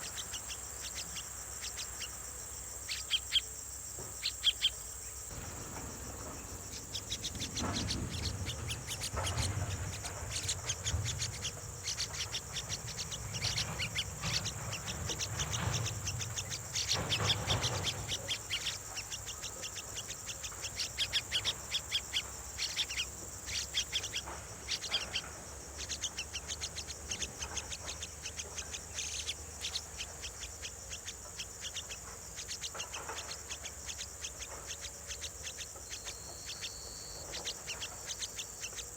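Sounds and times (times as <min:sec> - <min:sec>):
high insect hum: 0:00.0 - 0:38.9
nestlings chirping: 0:00.0 - 0:38.9
low rumbling: 0:05.3 - 0:17.5.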